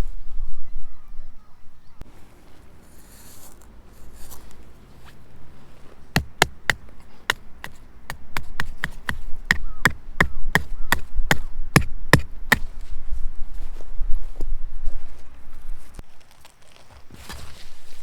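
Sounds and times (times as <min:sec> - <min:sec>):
sharp evenly paced knocks: 0:06.2 - 0:12.6.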